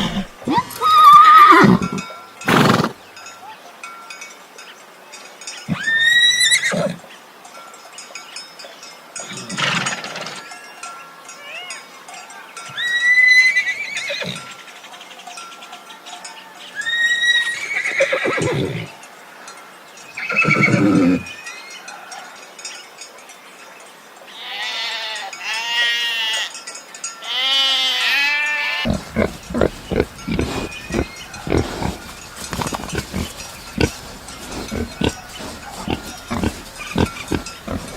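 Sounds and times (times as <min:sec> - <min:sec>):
farm animal cries: 0:00.0 - 0:03.0, 0:05.7 - 0:07.0, 0:16.8 - 0:19.0, 0:20.2 - 0:21.5, 0:24.4 - 0:26.5, 0:27.3 - 0:37.9
rapid low grunts: 0:28.9 - 0:37.9.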